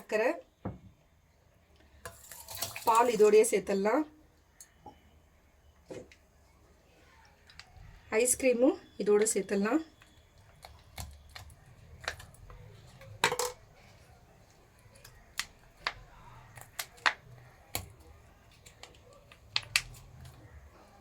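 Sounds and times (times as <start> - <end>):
spoon tapping containers: 10.0 - 13.7.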